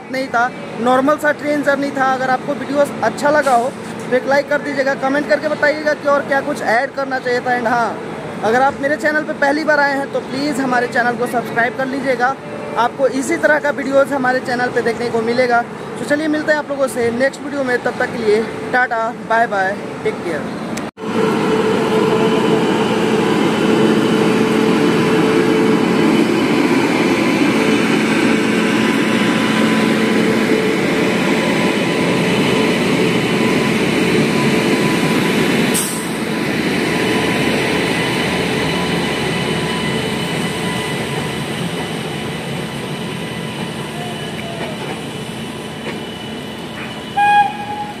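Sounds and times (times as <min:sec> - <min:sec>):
train rumbling and rattling: 0:20.3 - 0:48.0.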